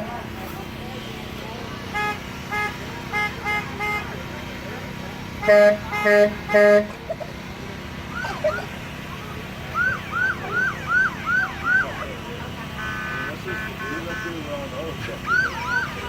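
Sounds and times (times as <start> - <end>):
truck horn honks: 1.0 - 4.3, 5.4 - 7.1, 10.3 - 16.0
electronic siren yelps: 8.1 - 14.4, 15.0 - 16.0.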